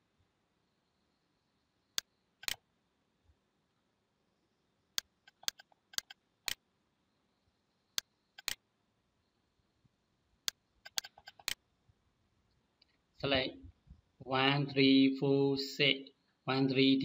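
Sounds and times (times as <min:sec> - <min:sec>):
computer mouse clicking: 0:02.0 - 0:02.6, 0:05.0 - 0:06.6, 0:08.0 - 0:08.6, 0:10.4 - 0:11.6.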